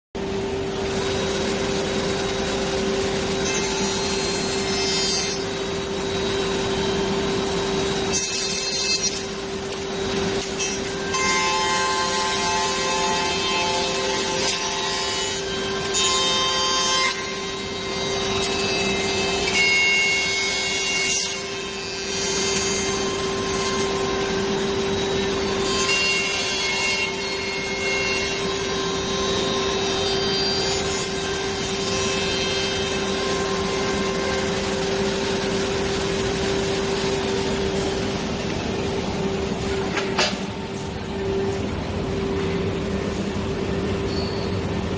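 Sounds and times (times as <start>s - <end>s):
machine spindle whine: 0.2s - 44.9s.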